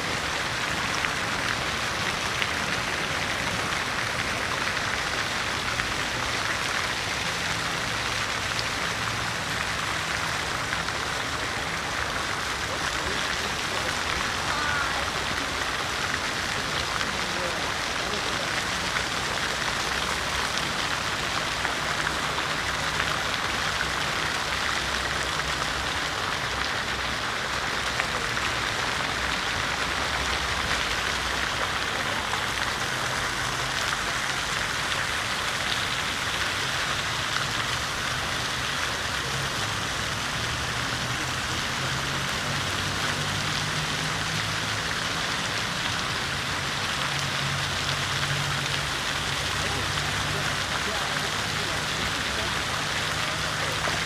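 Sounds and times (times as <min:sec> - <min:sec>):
fountain water splashing: 0:00.0 - 0:54.0.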